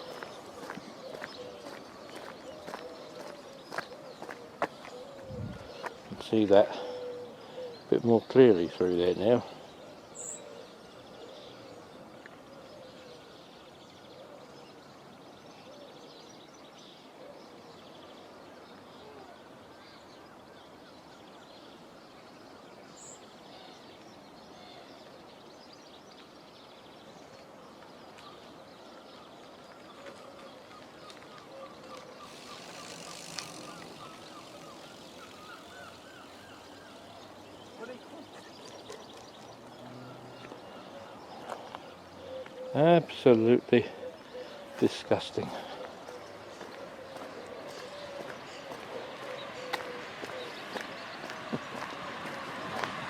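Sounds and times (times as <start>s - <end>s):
distant birds chirping: 0.0s - 53.0s.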